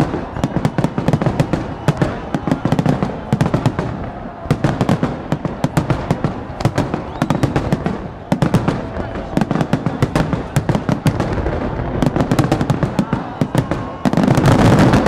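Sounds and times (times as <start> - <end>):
fireworks crackling: 0.0 - 15.0
fireworks thuds: 0.0 - 15.0.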